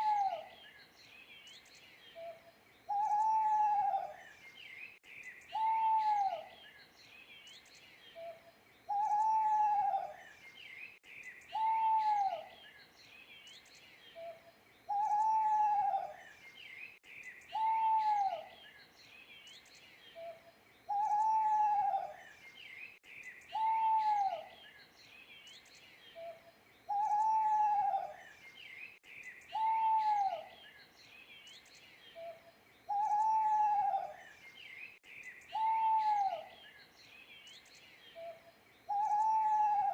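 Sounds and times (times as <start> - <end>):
owl hooting: 0.0 - 0.5, 2.2 - 4.2, 5.5 - 6.5, 8.2 - 10.2, 11.5 - 12.5, 14.2 - 16.2, 17.5 - 18.5, 20.2 - 22.2, 23.5 - 24.5, 26.2 - 28.2, 29.5 - 30.6, 32.2 - 34.2, 35.5 - 36.6, 38.2 - 39.9
small birds chirping: 0.0 - 39.9.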